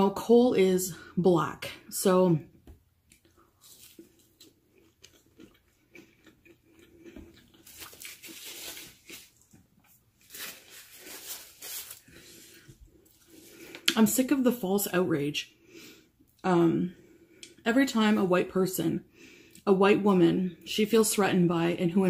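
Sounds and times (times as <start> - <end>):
chewing crunchy food: 3.1 - 11.4
paper wrapper rustling: 7.6 - 13.5.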